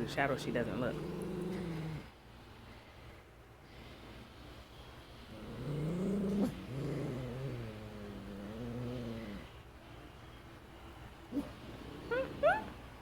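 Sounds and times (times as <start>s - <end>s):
dog growling low: 0.8s - 2.1s, 5.3s - 9.6s, 11.3s - 12.8s.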